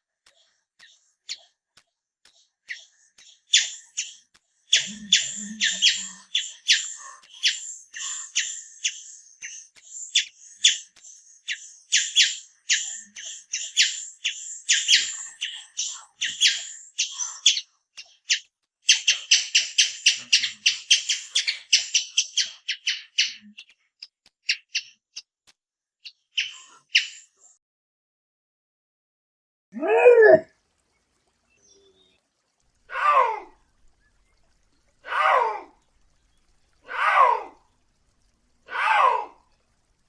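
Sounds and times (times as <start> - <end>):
animal squeaky chirps: 3.5 - 9.6.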